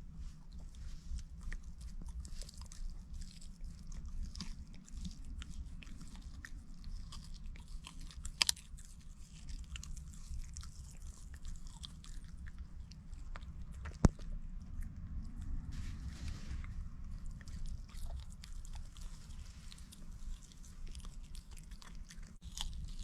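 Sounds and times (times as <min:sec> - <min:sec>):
chewing and crunching food: 0:00.0 - 0:23.0
steady low hum: 0:09.0 - 0:23.0.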